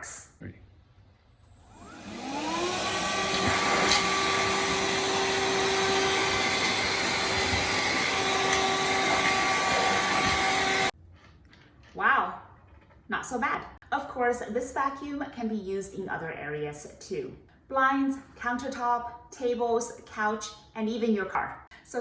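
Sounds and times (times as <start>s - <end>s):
handheld vacuum cleaner whining: 1.5s - 10.9s.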